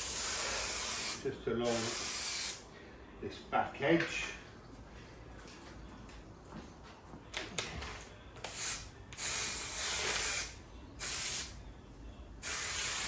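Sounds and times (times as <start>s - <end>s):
aerosol can spraying: 0.0s - 2.6s, 8.5s - 11.5s, 12.4s - 13.0s.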